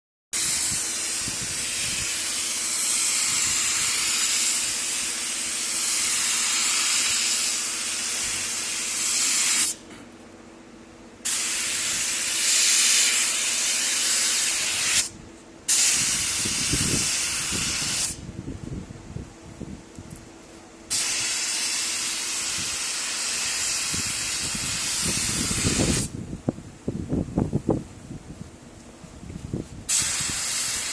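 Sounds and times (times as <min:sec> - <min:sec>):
spray gun hissing: 0:00.4 - 0:09.8, 0:11.2 - 0:15.1, 0:15.7 - 0:18.2, 0:20.9 - 0:26.1, 0:29.9 - 0:30.9
steady low hum: 0:00.4 - 0:30.9.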